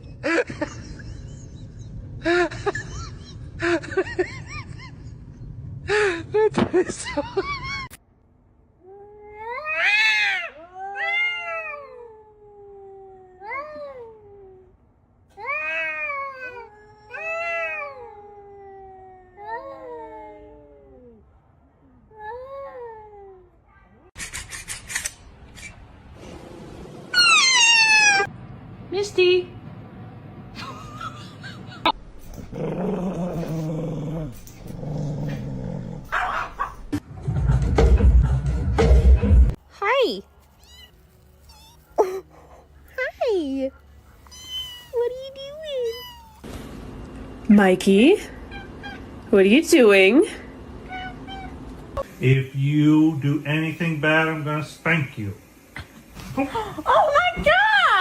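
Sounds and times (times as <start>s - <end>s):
cat yowling: 9.4s - 14.0s, 27.1s - 28.3s, 40.6s - 42.2s, 44.2s - 46.4s, 48.5s - 49.1s, 50.8s - 51.6s
pet growling low: 32.3s - 36.3s.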